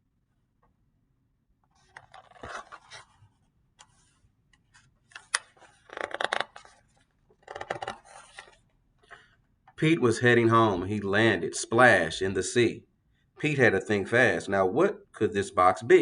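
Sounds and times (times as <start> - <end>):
book pages rustling: 1.7 - 8.6.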